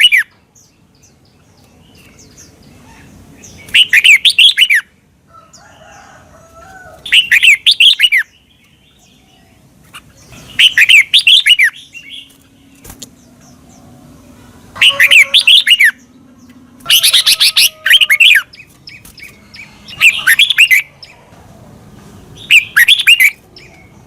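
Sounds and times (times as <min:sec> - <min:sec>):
bird singing whistled notes: 0:22.4 - 0:23.9.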